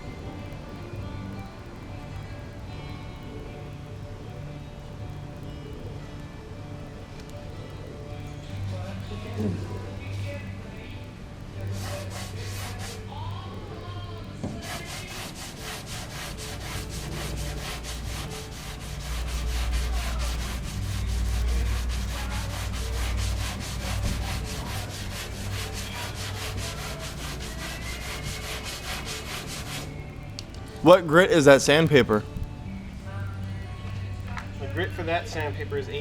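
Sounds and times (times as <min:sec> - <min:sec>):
sandpaper rubbing on steel: 0:11.7 - 0:13.1, 0:14.6 - 0:29.9.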